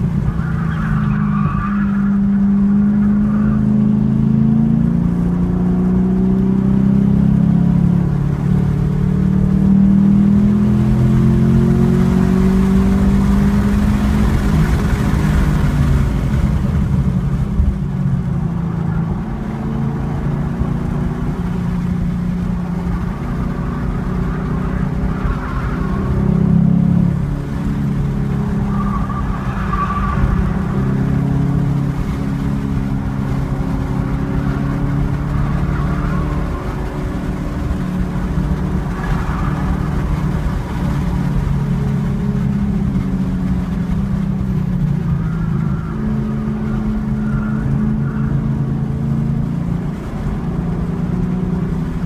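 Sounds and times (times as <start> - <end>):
car engine revving: 0.0 - 52.0
road and wind noise: 0.0 - 52.0.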